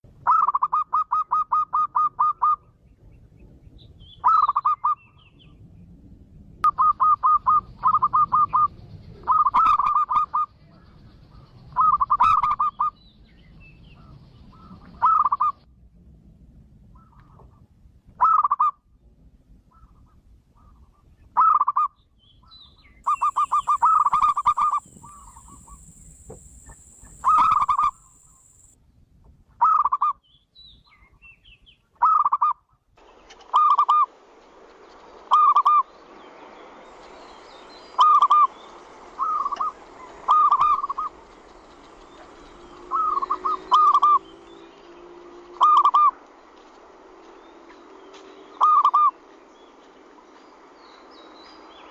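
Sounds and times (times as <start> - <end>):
dove cooing: 23.1 - 28.7, 39.2 - 41.2, 42.8 - 44.2, 45.6 - 46.2
steady hiss: 23.1 - 28.8.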